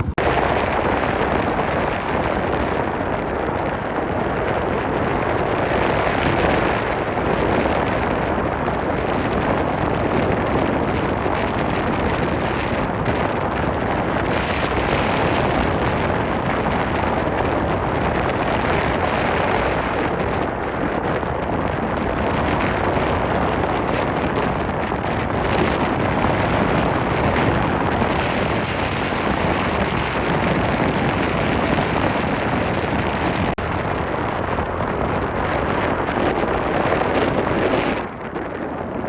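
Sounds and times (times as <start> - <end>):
strong wind on microphone: 0.0 - 39.0.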